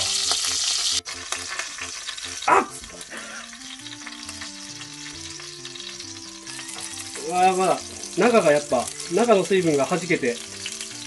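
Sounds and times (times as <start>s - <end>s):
insects frying in hot oil: 0.0s - 11.0s
loud sizzle: 0.0s - 11.0s.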